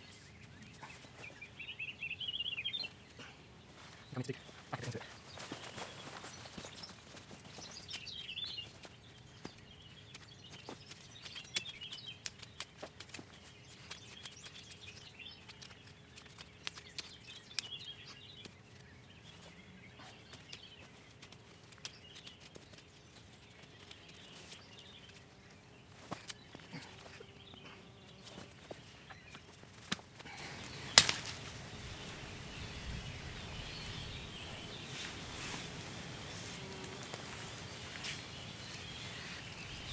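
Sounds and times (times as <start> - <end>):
birds chirping: 0.0 - 39.9
rustling: 3.6 - 9.6, 18.7 - 39.9
hand-digging in soil: 20.1 - 39.9.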